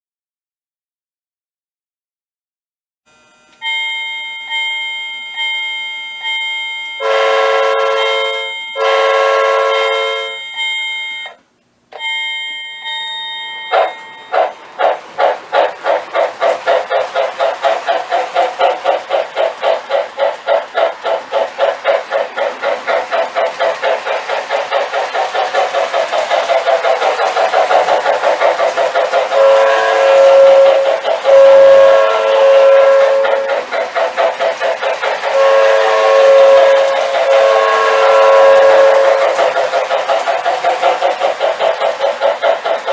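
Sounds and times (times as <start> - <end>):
locomotive bell ringing: 3.6 - 33.7, 34.3 - 41.2
train whistle blasts: 6.8 - 15.7, 28.9 - 33.7, 35.0 - 39.7
locomotive chuffing: 7.0 - 11.4, 12.0 - 42.9.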